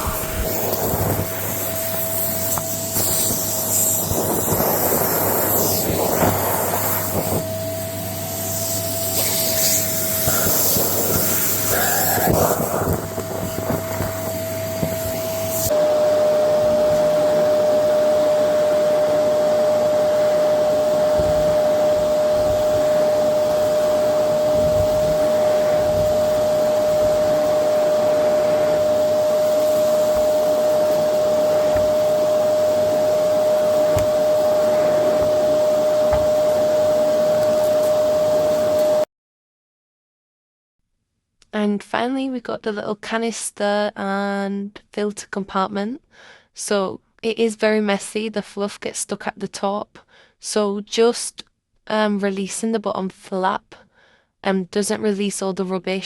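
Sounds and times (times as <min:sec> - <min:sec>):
vacuum cleaner running: 0:00.0 - 0:39.1.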